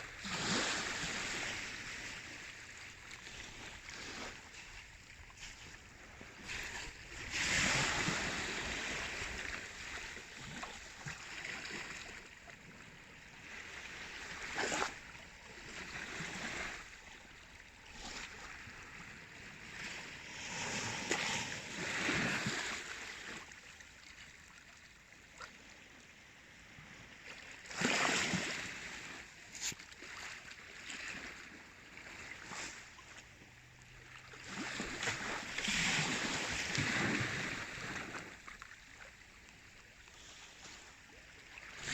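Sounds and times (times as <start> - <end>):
sea waves washing: 17.8 - 23.6.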